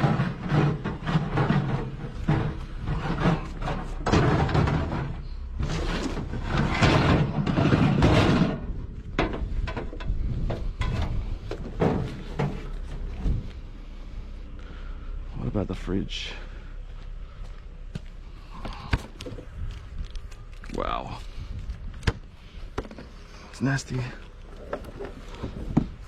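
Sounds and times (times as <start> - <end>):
objects knocking and clattering: 0.0 - 13.1
rustling and scraping: 0.0 - 15.0, 16.4 - 26.0.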